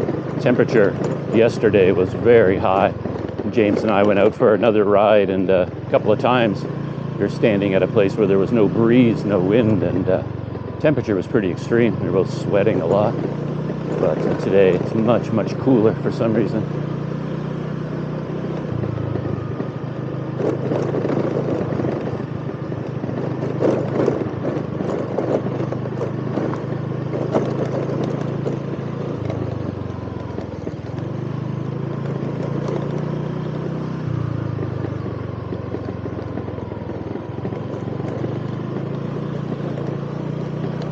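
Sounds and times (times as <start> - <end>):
rattles and clatter: 0.0 - 17.4, 18.2 - 40.9
motorcycle engine revving: 0.0 - 40.9.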